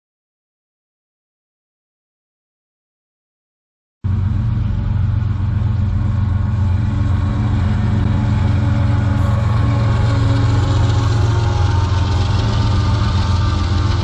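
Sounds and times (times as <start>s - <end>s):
locomotive engines droning: 4.1s - 14.0s.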